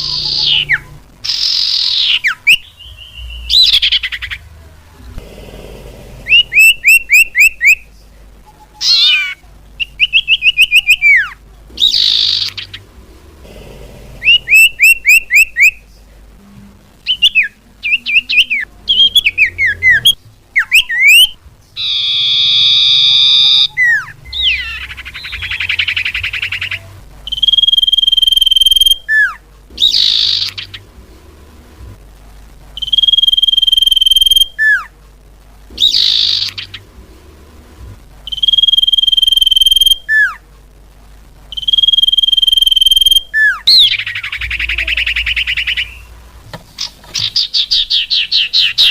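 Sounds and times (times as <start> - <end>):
bird whistled notes and chirps: 0.0 - 4.4, 6.3 - 7.9, 8.5 - 12.8, 14.2 - 15.8, 17.0 - 30.9, 32.8 - 34.9, 35.8 - 36.8, 38.3 - 40.4, 41.5 - 46.1, 46.8 - 48.9
steady bird whistles: 0.0 - 4.4, 6.3 - 7.8, 8.5 - 12.8, 14.2 - 15.8, 17.1 - 30.8, 32.8 - 34.9, 35.8 - 36.8, 38.3 - 40.4, 41.5 - 46.1
harsh buzzy bird chatter: 0.0 - 4.6, 5.2 - 16.0, 17.0 - 31.1, 35.7 - 37.0, 41.5 - 48.9.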